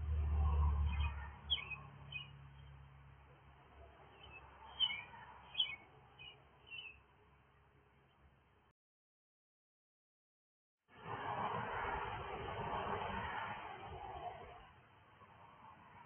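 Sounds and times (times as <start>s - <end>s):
high bird chirps: 0.8s - 2.7s, 4.1s - 7.0s.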